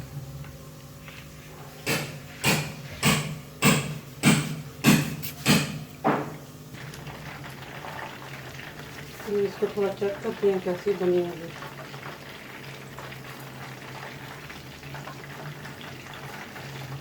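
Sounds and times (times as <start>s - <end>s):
low steady hum: 0.0s - 11.7s.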